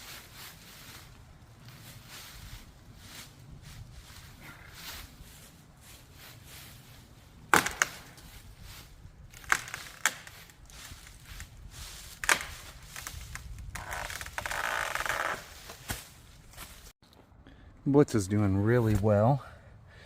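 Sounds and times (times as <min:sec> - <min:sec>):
dry wood cracking: 0:07.5 - 0:08.6, 0:09.2 - 0:16.0.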